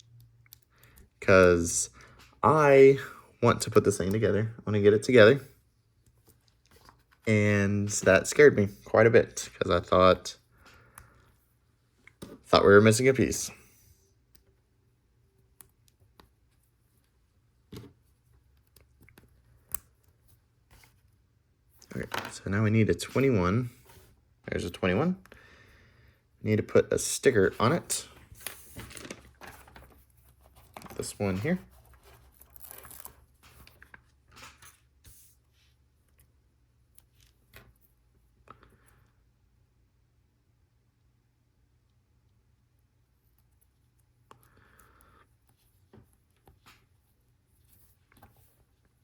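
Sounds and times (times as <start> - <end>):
soft rustles of sticker sheet: 11.2 - 25.0, 26.8 - 39.1, 43.0 - 49.0.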